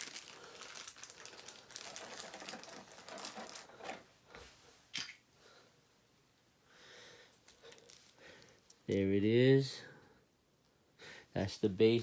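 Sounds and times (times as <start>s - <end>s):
plastic clicking and rustling: 1.0s - 4.0s.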